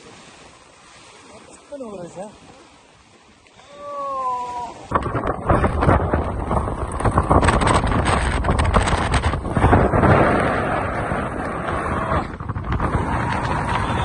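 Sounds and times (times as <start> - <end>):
wind buffeting microphone: 4.7 - 14.0.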